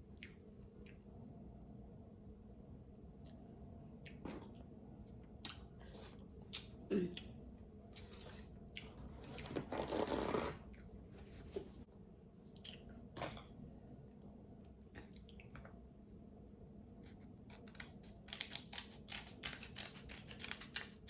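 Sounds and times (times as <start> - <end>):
crab shells snapping and cracking: 17.5 - 21.0.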